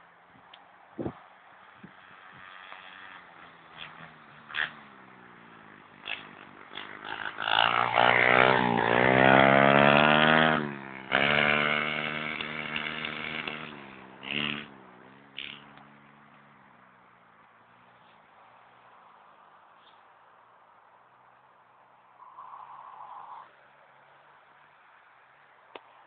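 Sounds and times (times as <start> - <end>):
pit bike engine revving: 1.7 - 16.6.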